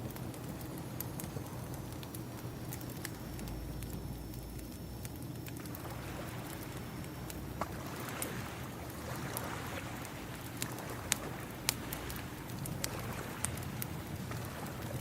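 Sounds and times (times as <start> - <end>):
wood fire crackling: 0.0 - 15.0
ocean waves washing in: 7.7 - 15.0.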